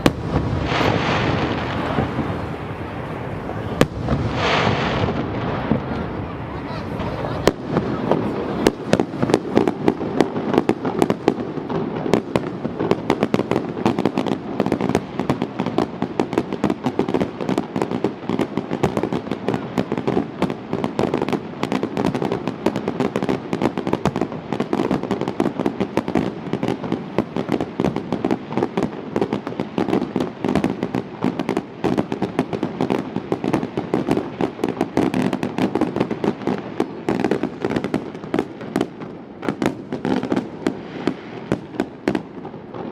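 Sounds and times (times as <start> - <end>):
fireworks bangs and crackling: 0.0 - 42.9.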